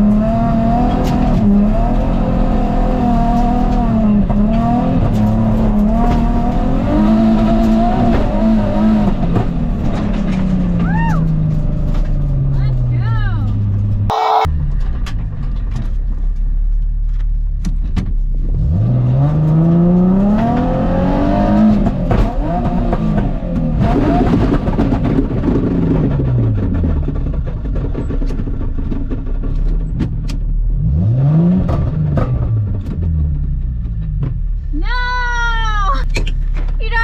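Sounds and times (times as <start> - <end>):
car engine revving hard: 0.0 - 9.6, 18.6 - 26.0, 30.8 - 32.8.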